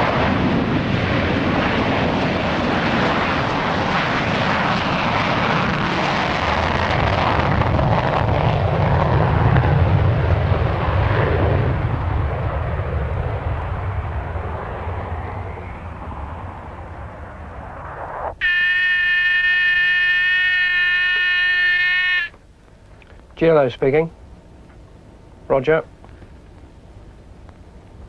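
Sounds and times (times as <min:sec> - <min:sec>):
jet flying past: 0:00.0 - 0:22.4.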